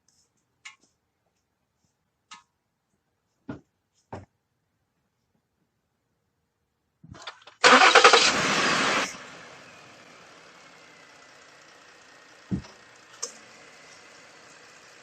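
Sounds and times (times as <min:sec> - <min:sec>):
car engine starting and idling: 0:07.2 - 0:15.0
short thump: 0:12.5 - 0:12.7.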